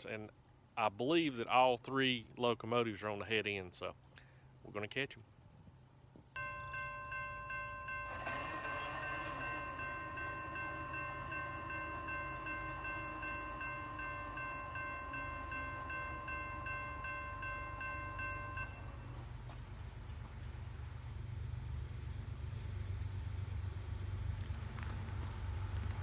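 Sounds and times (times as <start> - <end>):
crossing bell ringing: 6.4 - 19.2.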